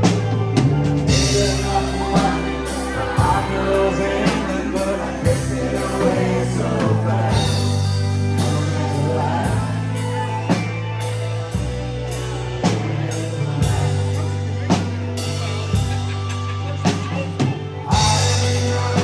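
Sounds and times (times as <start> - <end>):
bass: 0.0 - 19.0
drum kit: 0.0 - 19.0
guitar: 0.0 - 19.0.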